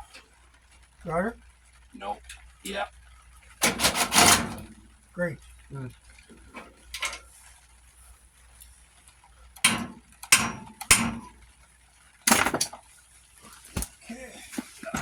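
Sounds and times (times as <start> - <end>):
metal tools clanking: 3.6 - 4.8, 6.3 - 7.4, 9.6 - 11.3.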